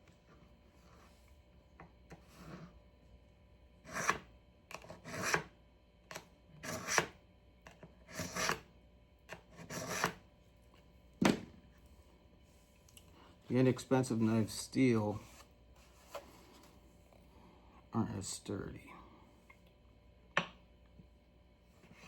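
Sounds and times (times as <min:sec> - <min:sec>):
knife scraping through sharpener: 0:06.6 - 0:07.1, 0:08.1 - 0:08.6, 0:09.6 - 0:10.2.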